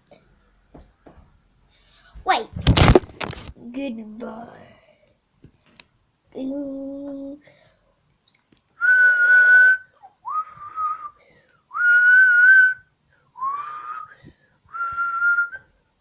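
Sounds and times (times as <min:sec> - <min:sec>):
person whistling a tune: 0:08.8 - 0:15.7.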